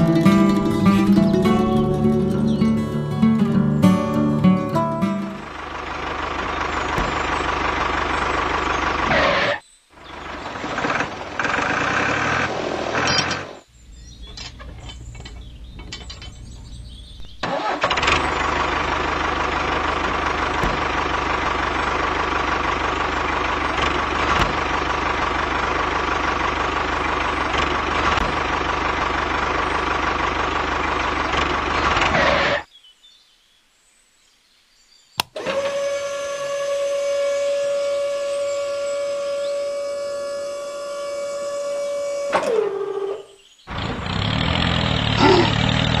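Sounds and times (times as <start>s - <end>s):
motor whining: 35.2s - 43.2s.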